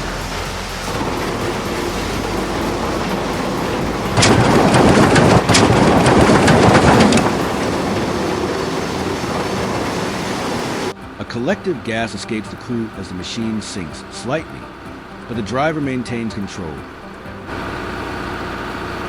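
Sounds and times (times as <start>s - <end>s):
clanking and rattling clicks: 0.0s - 10.9s
heavy machine working: 0.0s - 19.0s.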